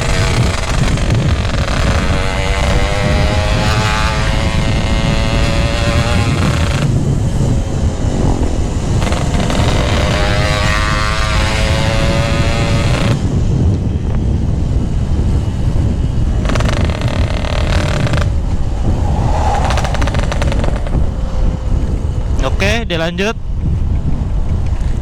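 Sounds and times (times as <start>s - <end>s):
motorcycle engine revving: 0.0s - 7.0s, 16.2s - 21.1s
wind rumble on microphone: 0.0s - 25.0s.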